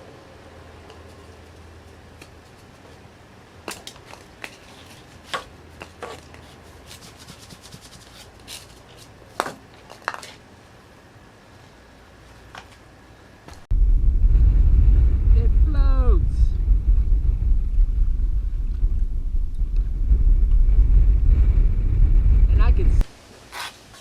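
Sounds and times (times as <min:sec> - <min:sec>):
steady low hum: 0:10.5 - 0:23.1.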